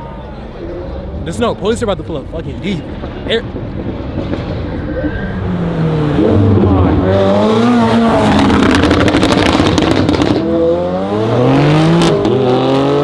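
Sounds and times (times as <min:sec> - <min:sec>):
car accelerating hard: 0:03.0 - 0:13.0.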